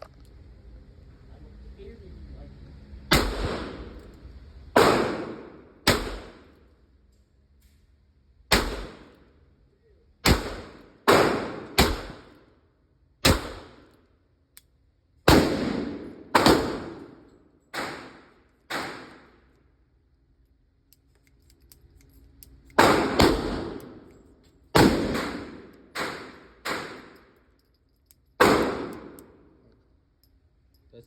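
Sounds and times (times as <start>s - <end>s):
revolver gunshots: 3.1s - 4.0s, 4.7s - 6.5s, 8.5s - 9.1s, 10.2s - 12.4s, 13.2s - 13.9s, 15.3s - 19.4s, 22.8s - 24.1s, 24.7s - 27.2s, 28.4s - 29.4s.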